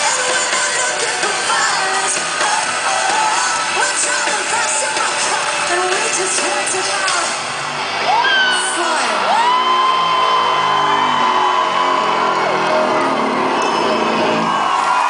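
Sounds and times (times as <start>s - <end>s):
live rock band over loudspeakers: 0.0s - 15.0s.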